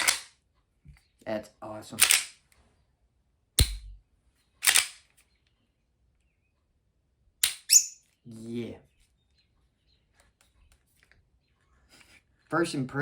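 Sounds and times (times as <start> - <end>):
pistol slide metal clacks: 0.0 - 0.4, 2.0 - 2.4, 3.6 - 4.0, 4.6 - 5.2, 7.4 - 7.8.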